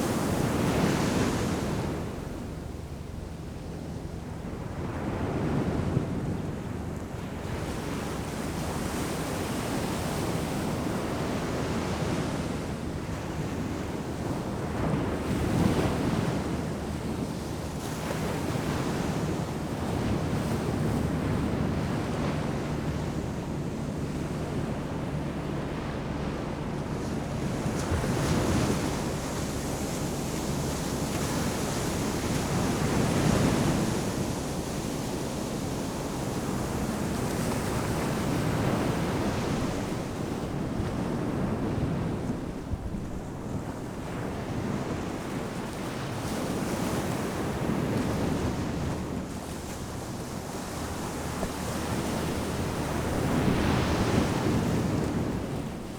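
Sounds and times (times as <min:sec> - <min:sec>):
wind buffeting microphone: 0:00.0 - 0:55.9
ocean surf breaking: 0:44.2 - 0:55.9.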